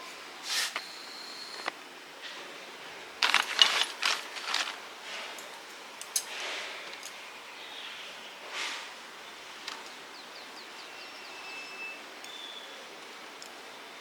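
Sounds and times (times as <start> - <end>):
metal parts clinking and rattling: 3.2 - 6.4.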